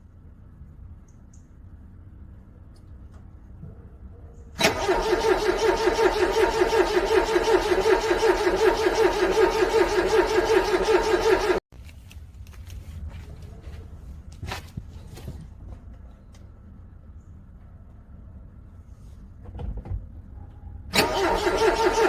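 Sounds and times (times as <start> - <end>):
car starter motor cranking: 4.6 - 11.6, 20.9 - 22.0.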